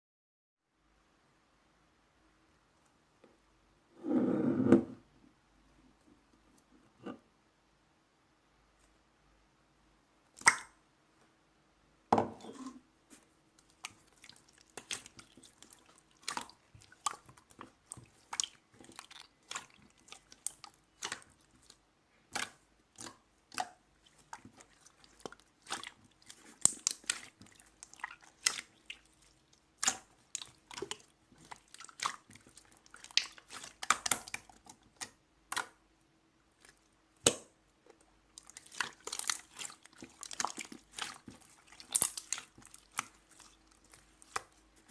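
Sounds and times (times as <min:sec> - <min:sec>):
slime squished by hand: 0:13.6 - 0:35.8, 0:38.4 - 0:44.9.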